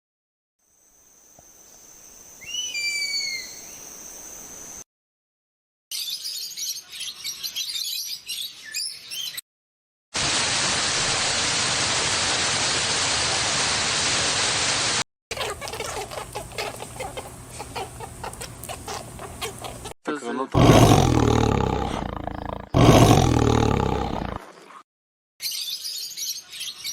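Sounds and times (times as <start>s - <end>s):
chickens clucking: 15.3s - 20.0s.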